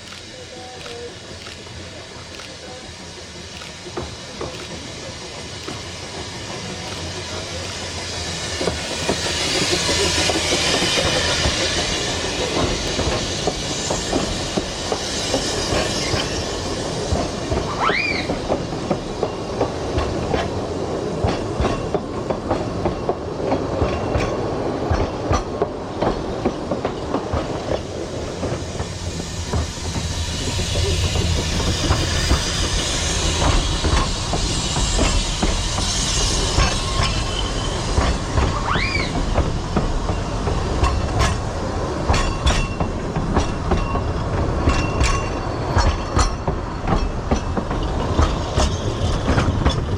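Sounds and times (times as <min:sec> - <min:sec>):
train wheels clattering on rails: 0:00.0 - 0:49.9
high wheel squeal: 0:17.7 - 0:18.5, 0:29.0 - 0:39.4.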